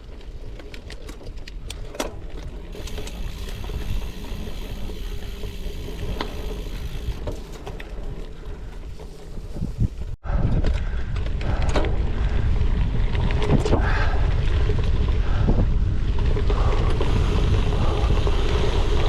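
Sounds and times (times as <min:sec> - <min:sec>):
bike rattling: 0:00.0 - 0:19.0
tyres rumbling on gravel: 0:02.2 - 0:10.0, 0:16.0 - 0:19.0.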